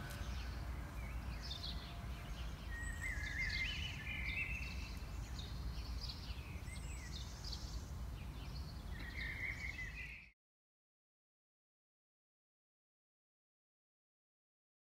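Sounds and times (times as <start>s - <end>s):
songbirds chirping and warbling: 0.0s - 10.4s.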